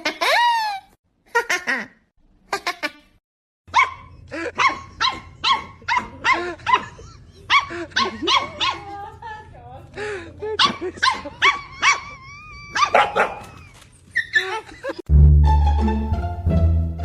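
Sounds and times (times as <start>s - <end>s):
dog barking fast: 3.7s - 9.0s, 12.8s - 13.4s.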